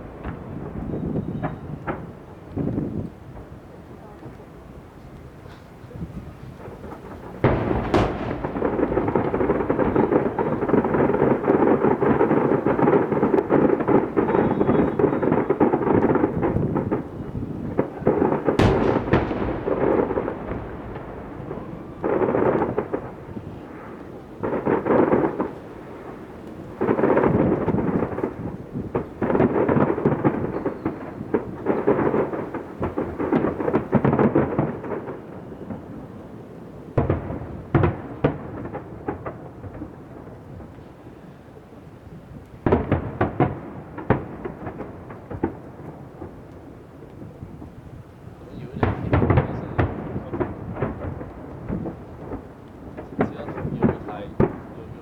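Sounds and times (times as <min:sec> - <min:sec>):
fireworks booming: 0:00.0 - 0:55.0
sharp firework crack: 0:06.4 - 0:35.2.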